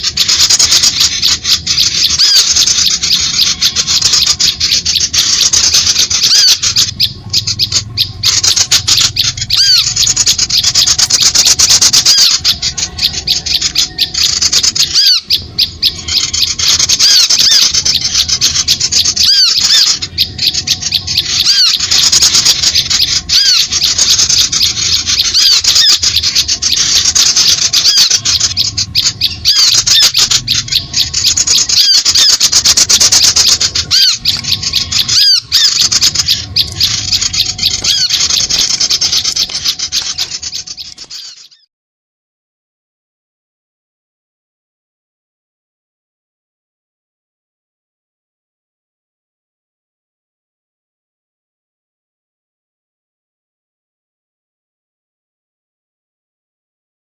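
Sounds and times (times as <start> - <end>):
small birds chattering calls: 0.0 - 41.7.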